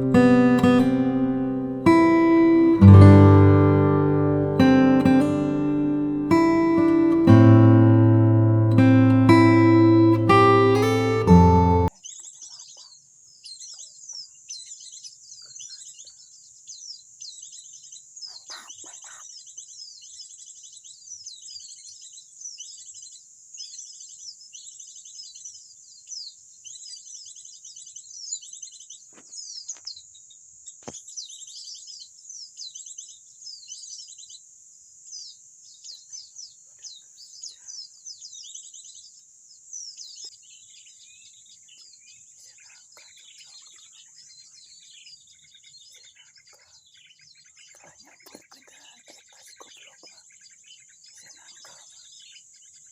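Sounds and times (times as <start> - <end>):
high-pitched buzz: 0.0 - 11.9
small birds chirping: 0.0 - 52.9.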